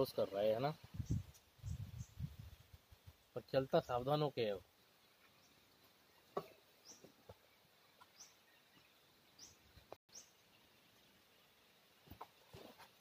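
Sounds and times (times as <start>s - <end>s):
bird chirping: 4.7s - 11.5s.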